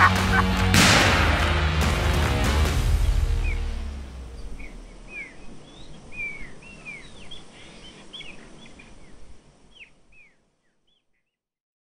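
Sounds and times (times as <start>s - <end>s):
birds chirping with falling calls: 3.3s - 11.4s.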